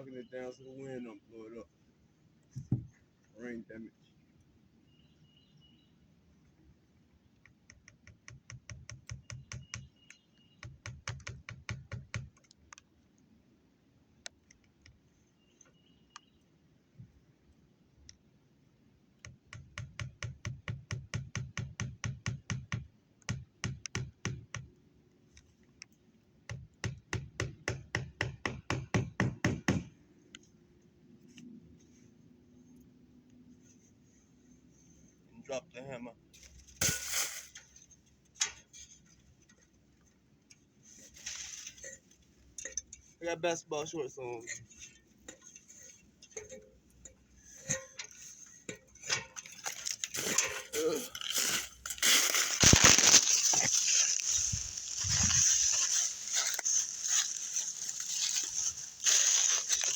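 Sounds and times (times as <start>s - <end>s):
hammer tapping nails: 26.5s - 29.9s.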